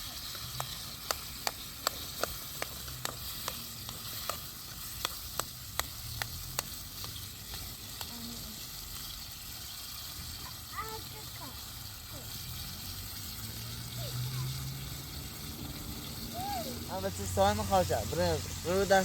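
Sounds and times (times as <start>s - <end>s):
food sizzling in a pan: 0.0s - 19.0s
utensil clicking against pan: 0.2s - 8.1s.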